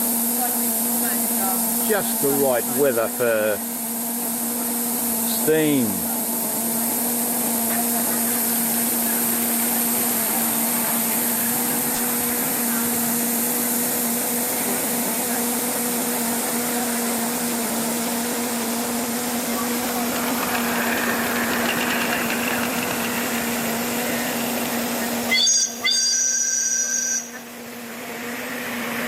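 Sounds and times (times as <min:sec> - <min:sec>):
mechanical hum: 0:00.0 - 0:29.0.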